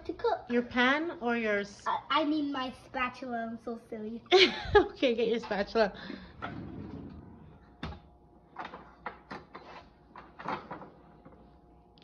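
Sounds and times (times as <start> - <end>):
drawer and utensils clattering: 6.2 - 8.0, 8.6 - 11.1.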